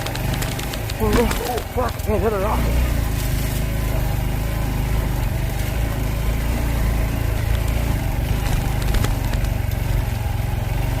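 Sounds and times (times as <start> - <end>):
faint clicks: 0.0 - 2.2
motorcycle engine running: 0.0 - 11.0.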